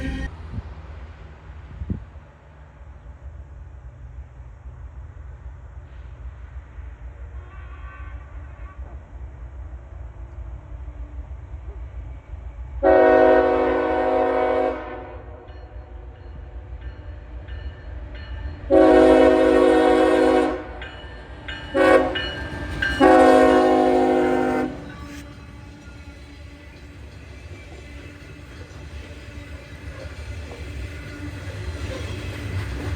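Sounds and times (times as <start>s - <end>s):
train rumbling: 0.0s - 32.9s
locomotive air horn blasts: 7.4s - 8.9s, 12.8s - 15.4s, 18.7s - 20.8s, 21.7s - 22.4s, 23.0s - 25.1s.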